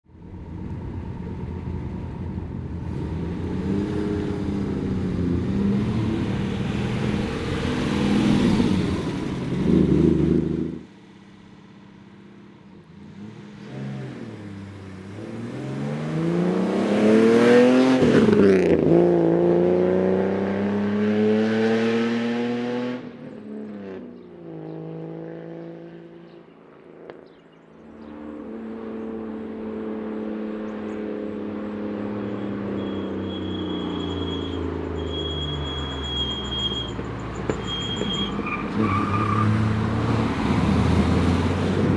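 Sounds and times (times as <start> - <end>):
car engine revving: 2.5 - 10.9, 13.2 - 23.1, 28.0 - 41.9.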